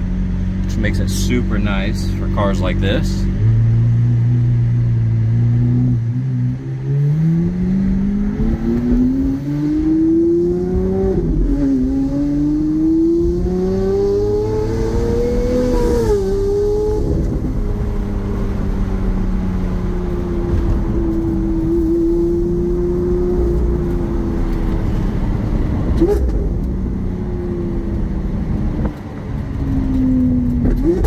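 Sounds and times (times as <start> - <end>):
sports car engine revving: 0.0 - 28.9.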